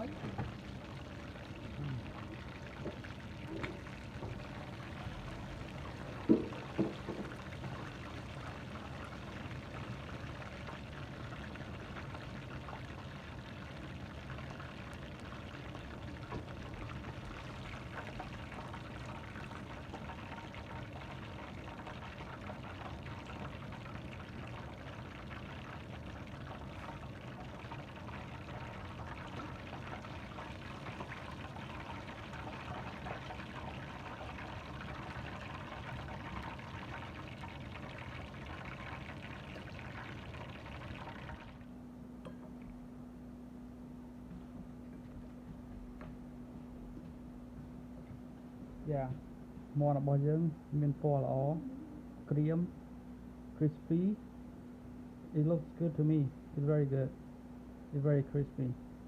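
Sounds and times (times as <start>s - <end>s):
chicken deep-frying in oil: 0.0s - 41.7s.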